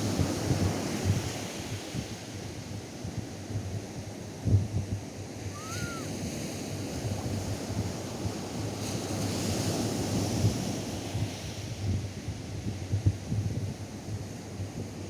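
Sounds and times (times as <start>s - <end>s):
surf washing on sandy beach: 5.5s - 12.8s
faint whistle-like chirp: 5.6s - 6.1s.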